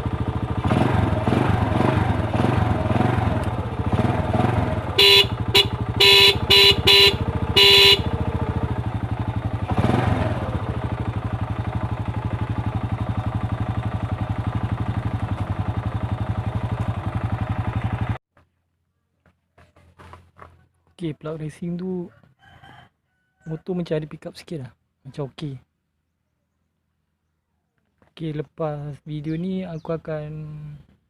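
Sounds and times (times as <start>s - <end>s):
motorcycle engine revving: 0.0s - 18.2s
motorcycle horn short beeps: 4.8s - 9.2s.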